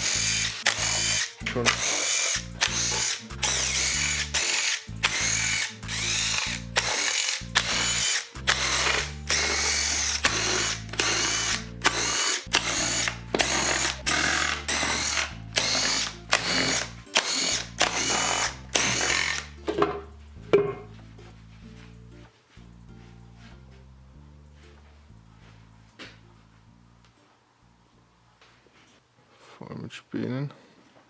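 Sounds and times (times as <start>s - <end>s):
cordless power tool whirring: 0.0s - 20.0s.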